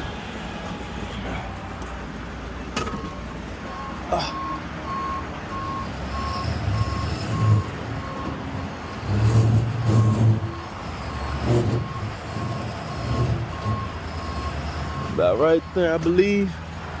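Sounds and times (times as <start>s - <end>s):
truck engine rumble: 0.0s - 17.0s
reverse alarm beeping: 3.0s - 9.1s.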